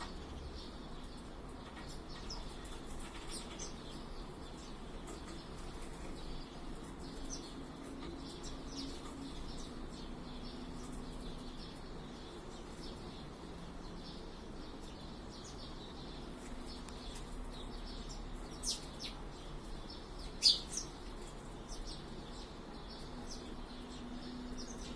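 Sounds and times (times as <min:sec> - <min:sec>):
faint low hum: 0:00.0 - 0:24.9
small birds chirping: 0:00.0 - 0:24.9.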